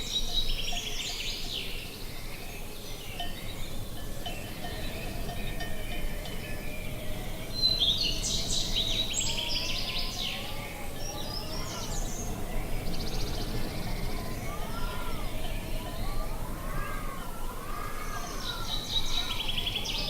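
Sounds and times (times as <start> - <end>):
bird trill: 0.0 - 20.0
songbirds singing: 0.0 - 20.0
wind rumble: 10.8 - 17.9.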